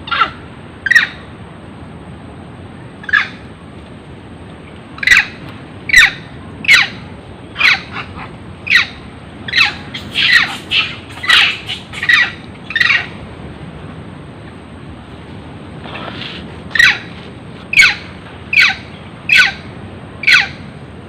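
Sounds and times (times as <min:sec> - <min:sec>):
monkey screaming: 0:00.0 - 0:01.2, 0:03.0 - 0:03.4, 0:05.0 - 0:07.0, 0:07.6 - 0:13.2, 0:16.7 - 0:17.1, 0:17.7 - 0:20.6.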